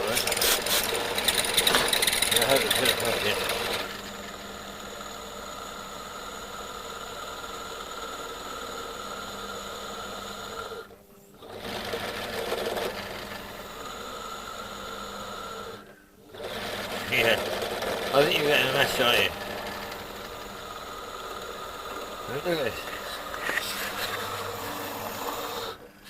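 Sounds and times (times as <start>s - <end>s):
pillar drill drilling steel: 0.0s - 10.9s, 16.5s - 26.0s.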